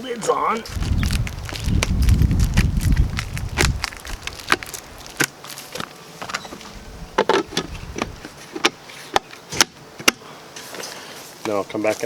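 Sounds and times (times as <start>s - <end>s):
low handling rumble: 0.6s - 5.2s
bucket lids clicking into place: 5.1s - 10.2s.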